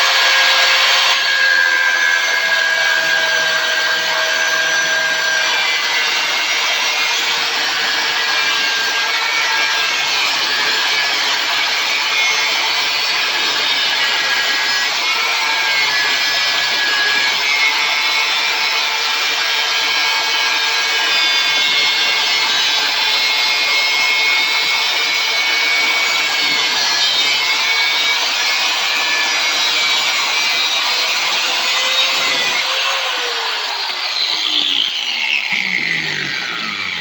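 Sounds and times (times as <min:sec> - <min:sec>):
angle grinder cutting steel: 0:00.0 - 0:37.0.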